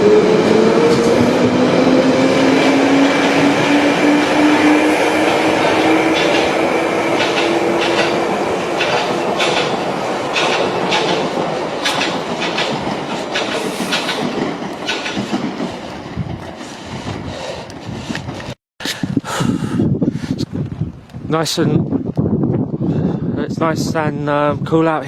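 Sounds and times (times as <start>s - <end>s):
train rumble and motor hum: 0.0s - 19.2s
train wheels clicking over rail joints: 2.4s - 18.6s.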